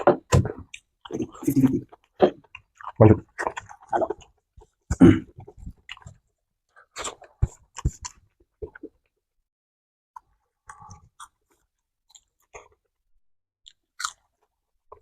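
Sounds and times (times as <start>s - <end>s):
crunchy chewing: 10.7s - 12.8s, 13.7s - 14.5s.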